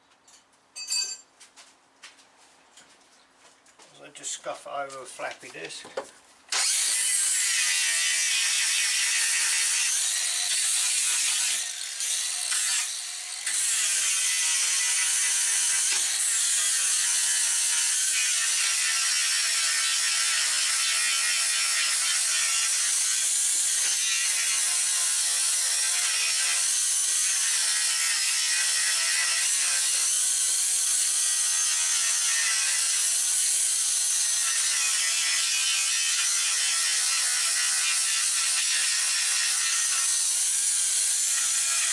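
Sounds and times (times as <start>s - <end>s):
angle grinder grinding steel: 6.5s - 41.9s.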